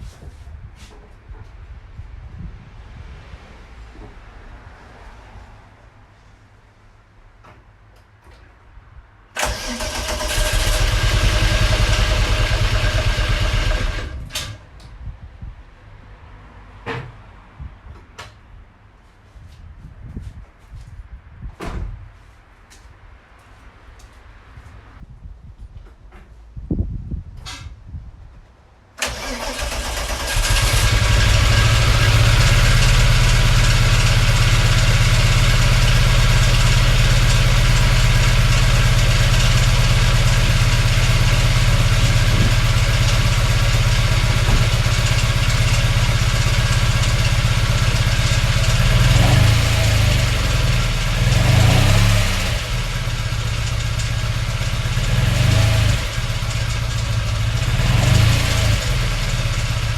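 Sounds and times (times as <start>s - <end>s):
engine revving: 9.4s - 14.6s, 29.0s - 59.9s
car engine starting and idling: 9.4s - 14.7s, 29.0s - 59.9s.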